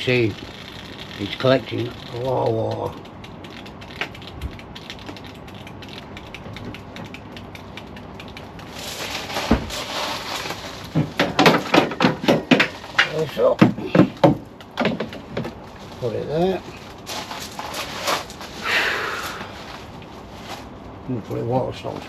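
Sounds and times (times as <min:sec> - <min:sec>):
light ticking and tapping: 0:00.0 - 0:09.2
loud knocks and clatter: 0:09.3 - 0:15.6
hissing rush: 0:16.0 - 0:20.3.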